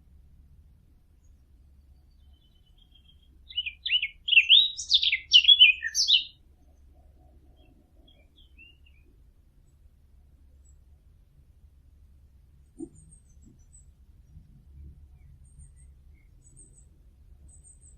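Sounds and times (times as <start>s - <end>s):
small songbird singing: 1.2s - 9.2s, 12.8s - 17.9s.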